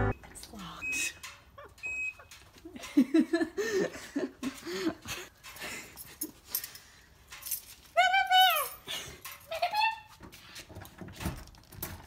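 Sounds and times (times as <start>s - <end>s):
keys jingling: 5.4s - 9.8s.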